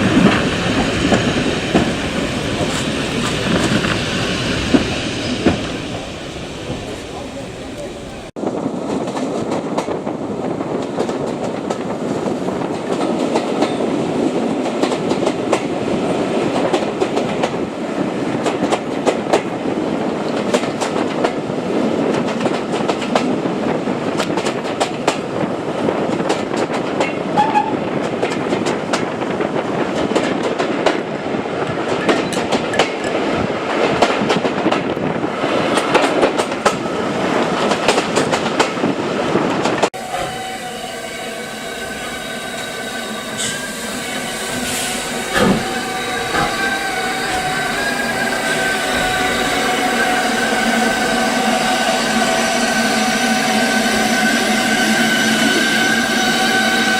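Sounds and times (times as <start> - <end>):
train wheels rumbling on rails: 0.0 - 56.9
wheels clicking over rail joints: 44.6 - 50.5.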